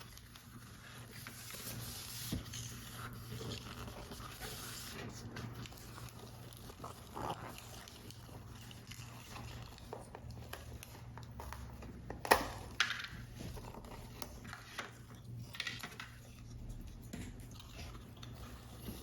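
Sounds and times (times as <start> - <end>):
paper rustling and scraping: 0.0 - 11.7.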